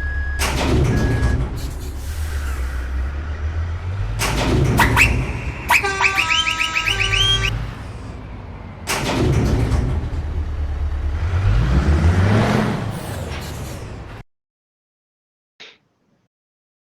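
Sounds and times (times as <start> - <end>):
truck engine rumbling: 0.0 - 14.2
steady pitched tones: 4.8 - 7.6.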